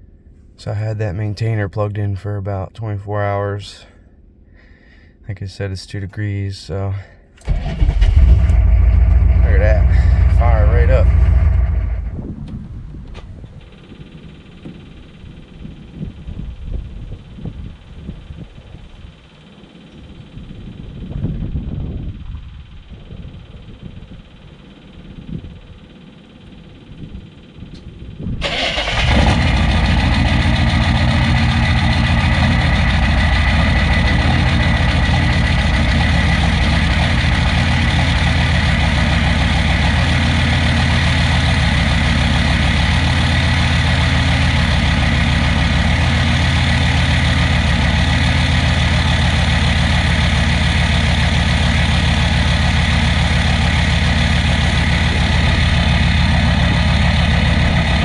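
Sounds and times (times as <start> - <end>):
diesel engine idling loudly: 7.4 - 12.5, 28.4 - 58.0.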